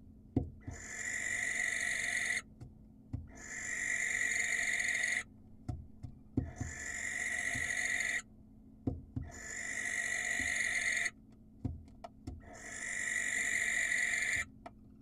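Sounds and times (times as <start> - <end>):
barn owl hissing screeches: 0.7 - 2.4, 3.4 - 5.3, 6.6 - 8.2, 9.3 - 11.2, 12.5 - 14.5.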